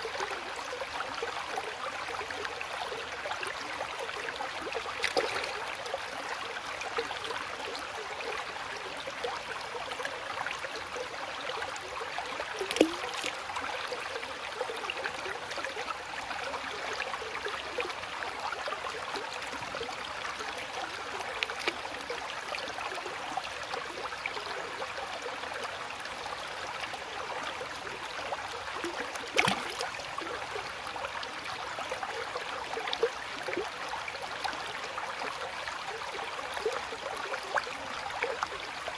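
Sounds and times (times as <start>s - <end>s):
stream trickling and burbling: 0.0s - 38.9s
water splash: 5.0s - 5.7s, 12.6s - 13.4s, 29.2s - 29.9s.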